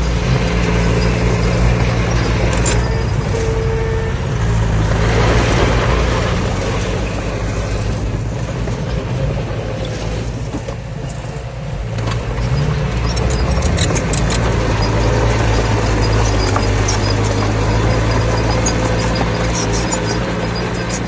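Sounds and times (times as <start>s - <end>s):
heavy machinery diesel engine: 0.0s - 21.0s
metallic clicks and squeaks: 0.1s - 4.0s, 9.8s - 21.0s.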